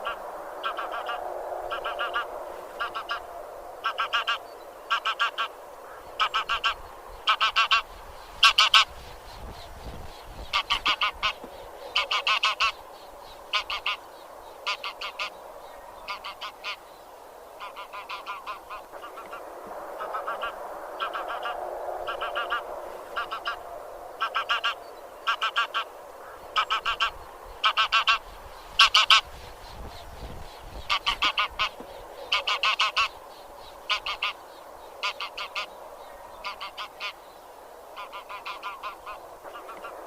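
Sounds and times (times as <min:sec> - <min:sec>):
faint din of geese: 0:00.0 - 0:08.9, 0:17.6 - 0:29.3, 0:35.0 - 0:35.7, 0:38.0 - 0:40.0
geese honking: 0:00.0 - 0:08.9, 0:10.5 - 0:12.8, 0:13.5 - 0:14.0, 0:14.6 - 0:15.4, 0:16.0 - 0:16.8, 0:17.6 - 0:19.4, 0:23.2 - 0:23.6, 0:24.2 - 0:29.3, 0:30.9 - 0:33.2, 0:33.9 - 0:34.4, 0:35.0 - 0:35.7, 0:36.4 - 0:37.2, 0:38.0 - 0:40.0.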